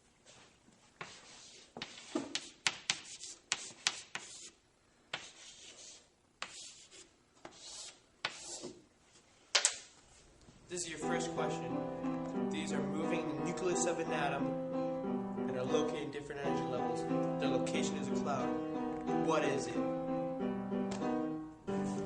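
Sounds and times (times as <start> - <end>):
rubbing and rustling scrapes: 0.2 - 9.4.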